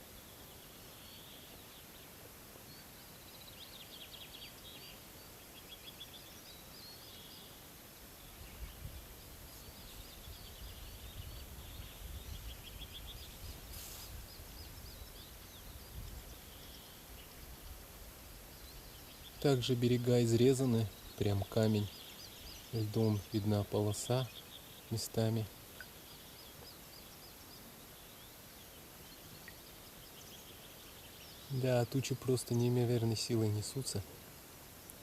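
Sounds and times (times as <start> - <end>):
small birds chirping: 0.0 - 35.0
wind buffeting microphone: 10.2 - 15.0.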